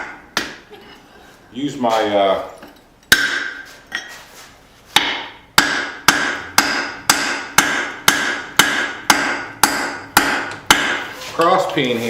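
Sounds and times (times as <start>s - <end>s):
hammer striking steel on anvil: 3.1s - 3.6s, 5.0s - 11.1s.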